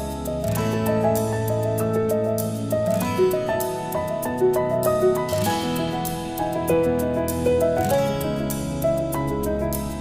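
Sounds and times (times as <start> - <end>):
soft instrumental music: 0.0 - 10.0.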